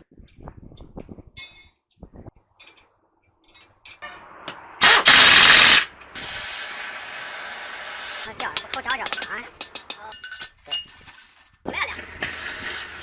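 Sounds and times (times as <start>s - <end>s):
metal tools clinking: 1.4s - 1.8s, 2.6s - 2.9s, 8.2s - 13.0s
air hissing: 4.5s - 10.0s, 10.8s - 13.0s
compressed-air tool rush: 4.5s - 10.0s, 10.6s - 13.0s.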